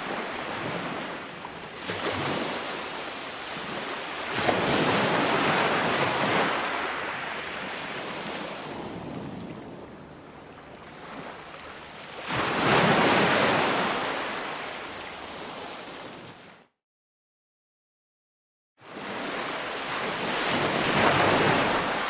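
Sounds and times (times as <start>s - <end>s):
ocean waves washing in: 0.0s - 16.3s, 18.8s - 22.0s.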